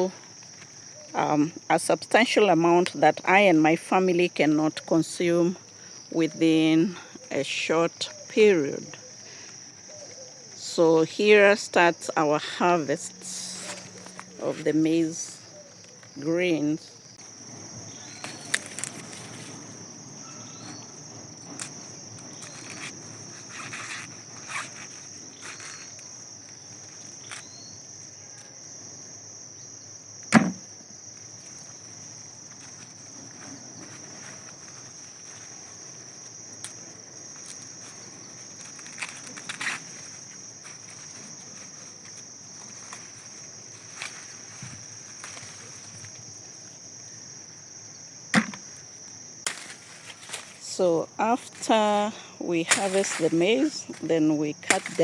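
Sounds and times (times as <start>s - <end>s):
dry husks and leaves rustling: 0.0s - 55.0s
high insect drone: 0.0s - 55.0s
maize ears snapping off stalks: 18.2s - 19.6s, 49.4s - 50.6s, 52.6s - 55.0s.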